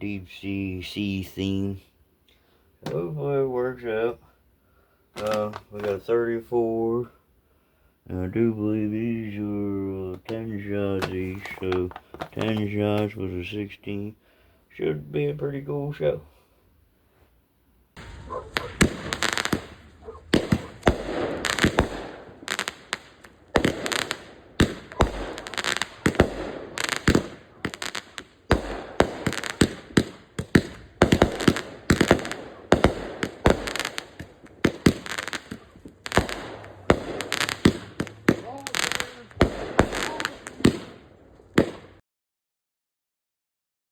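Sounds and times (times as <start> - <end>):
fireworks bangs: 2.8 - 4.1, 5.2 - 7.0, 8.1 - 14.1, 18.0 - 42.0
fireworks hissing and crackling: 5.1 - 7.1, 8.1 - 14.1, 18.0 - 42.0.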